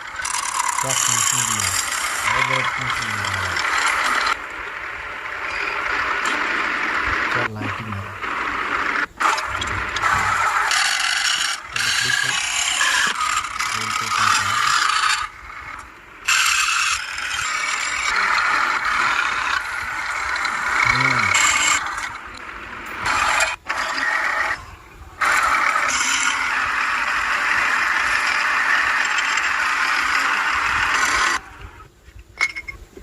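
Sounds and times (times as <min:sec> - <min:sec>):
tool scraping wood: 0:00.0 - 0:04.4, 0:08.2 - 0:22.4, 0:25.2 - 0:31.4.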